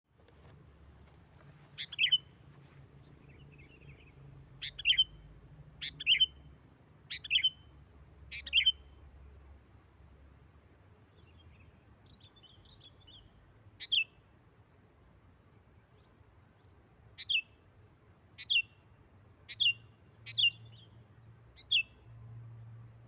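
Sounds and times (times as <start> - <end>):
soft bird chirps: 1.3 - 9.0, 11.1 - 14.3, 15.8 - 17.7, 18.4 - 23.0
bird calling sharp warbles: 1.8 - 2.3, 4.6 - 5.2, 5.8 - 6.4, 7.1 - 7.6, 8.3 - 8.9.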